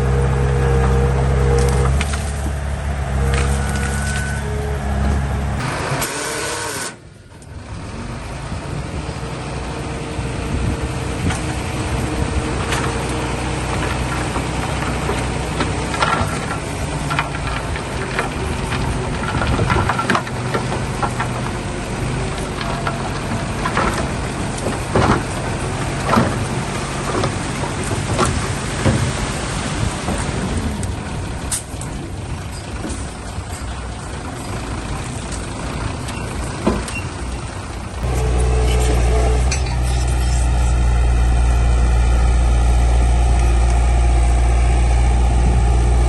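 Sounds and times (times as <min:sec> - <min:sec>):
diesel machinery running: 0:00.0 - 0:46.0
metal knocks and clanks: 0:12.5 - 0:29.1, 0:38.0 - 0:40.8.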